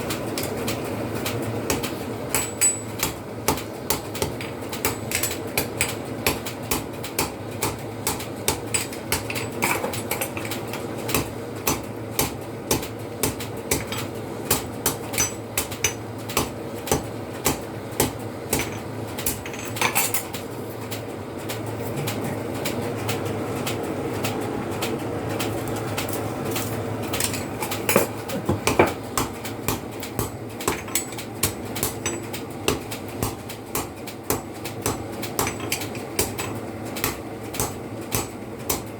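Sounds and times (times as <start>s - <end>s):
hammer striking steel on anvil: 1.7s - 3.2s, 28.6s - 38.9s.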